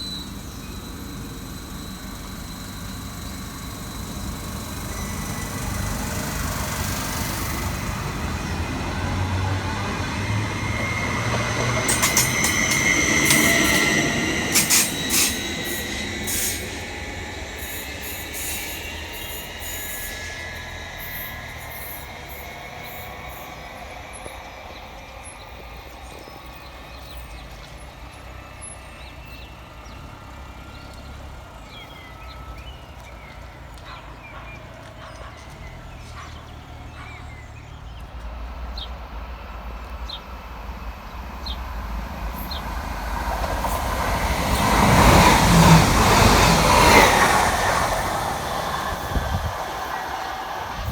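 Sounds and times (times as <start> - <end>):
high squeal: 0.0 - 30.0, 42.3 - 50.9
train wheels clicking over rail joints: 0.0 - 31.5, 37.9 - 50.9.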